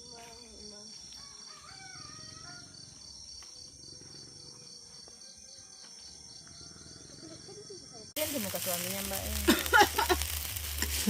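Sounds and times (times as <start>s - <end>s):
crickets chirping: 0.0s - 11.0s
high continuous hiss: 8.2s - 11.0s.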